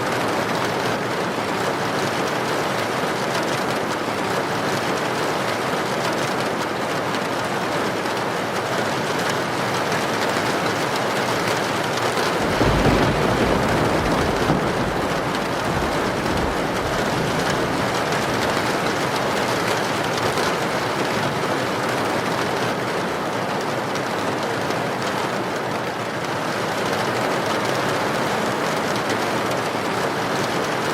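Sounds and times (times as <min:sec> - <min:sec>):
heavy rain hissing: 0:11.7 - 0:23.3.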